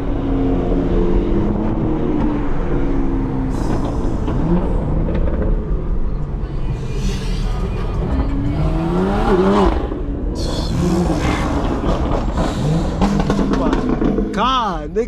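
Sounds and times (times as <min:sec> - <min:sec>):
car exhaust rumble: 0:00.0 - 0:15.0
engine revving hard: 0:06.8 - 0:14.6.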